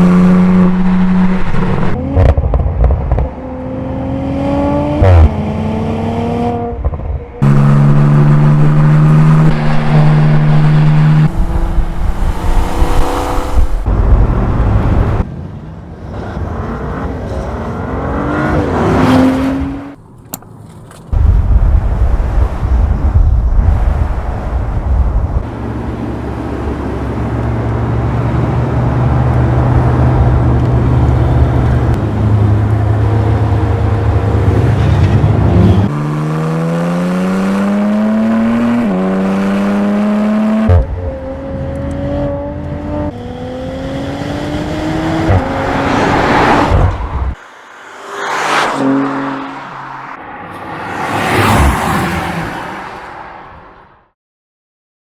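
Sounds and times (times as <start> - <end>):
car engine accelerating: 0.0 - 15.3, 23.7 - 52.4
whoosh: 9.6 - 15.2, 45.2 - 52.2.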